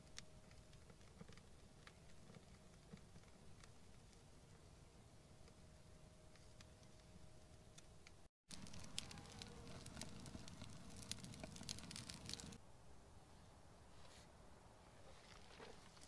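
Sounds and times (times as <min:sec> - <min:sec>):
dry material crackling and rustling: 0:08.5 - 0:12.6, 0:15.0 - 0:16.0.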